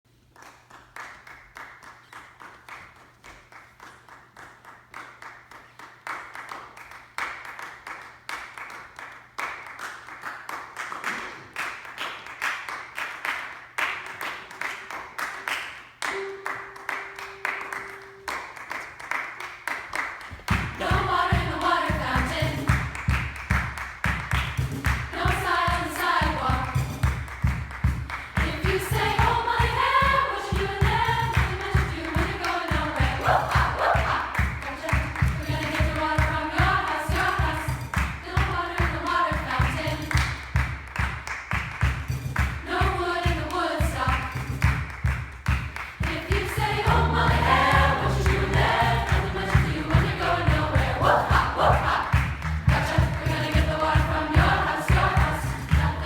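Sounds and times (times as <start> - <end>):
choir clapping rhythm: 0.3 - 56.0
choir singing: 20.6 - 22.9, 25.1 - 26.8, 28.4 - 40.2, 42.6 - 44.4, 46.0 - 56.0
strong low beat: 24.4 - 32.0, 45.6 - 56.0.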